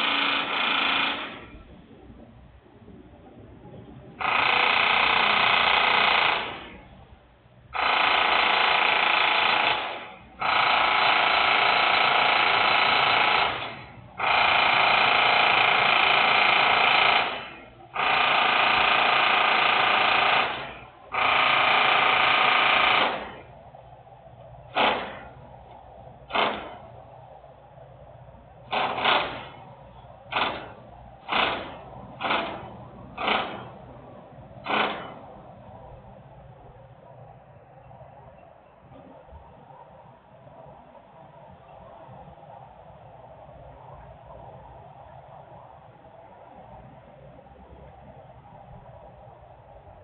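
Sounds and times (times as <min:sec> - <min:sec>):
industrial machinery bursts: 0:00.0 - 0:01.6, 0:07.8 - 0:23.5, 0:24.7 - 0:25.4, 0:26.3 - 0:26.9, 0:28.7 - 0:29.6, 0:30.3 - 0:33.9, 0:34.6 - 0:35.4
short machinery blasts: 0:24.7 - 0:25.5, 0:26.3 - 0:27.0, 0:28.7 - 0:29.7, 0:30.3 - 0:33.9, 0:34.6 - 0:35.4.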